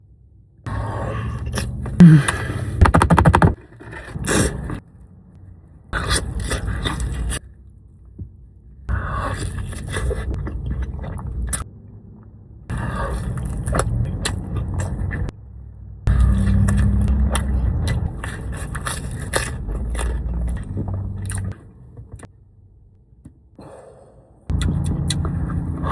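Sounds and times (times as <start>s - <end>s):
crunchy chewing: 16.1s - 21.7s.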